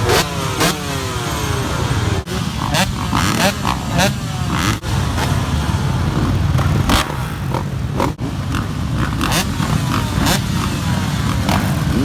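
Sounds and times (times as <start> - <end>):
wind gusts: 4.5 - 12.0.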